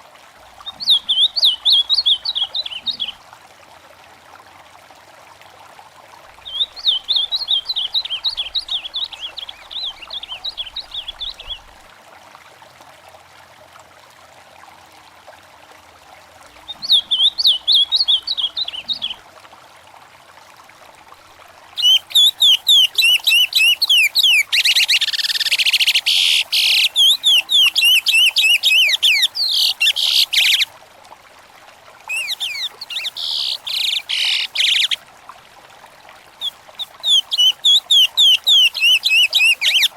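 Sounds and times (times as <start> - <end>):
faint stream: 0.0 - 39.9
songbirds chirping: 0.6 - 3.2, 6.4 - 11.8, 16.6 - 19.2, 21.8 - 30.7, 32.1 - 35.0, 36.4 - 39.9.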